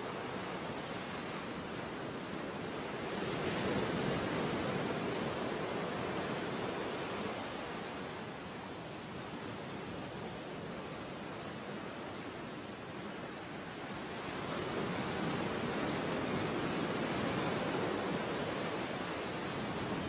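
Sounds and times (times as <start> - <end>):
sea waves washing: 13.5 - 20.0.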